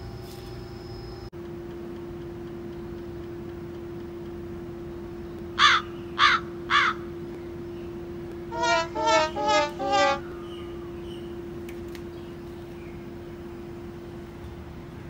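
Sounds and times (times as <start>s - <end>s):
steady low hum: 0.0s - 15.0s
bird calling: 4.9s - 13.8s.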